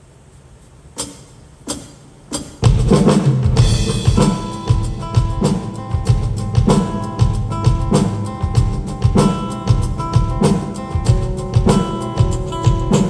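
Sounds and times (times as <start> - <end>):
sharp drum strikes: 1.0 - 13.0
rock band playing live: 2.6 - 13.0.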